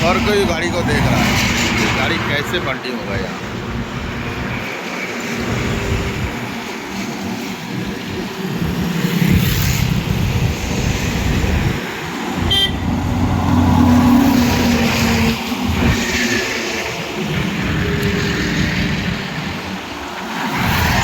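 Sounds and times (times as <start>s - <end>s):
highway traffic passing: 0.0s - 21.0s
heavy engine drone: 9.9s - 19.7s
short horn beep: 12.5s - 12.8s.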